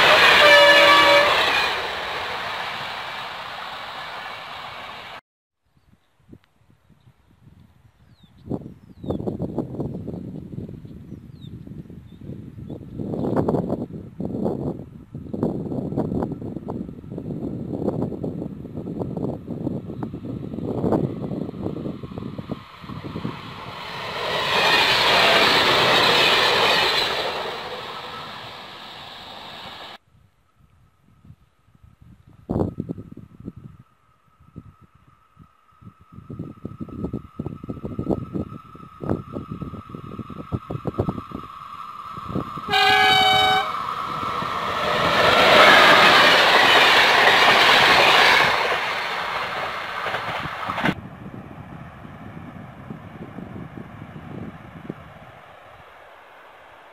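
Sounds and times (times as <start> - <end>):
train horn blast: 0.0 - 2.2, 42.7 - 43.9
train passing at speed: 0.0 - 5.2, 13.0 - 30.0, 32.6 - 56.9.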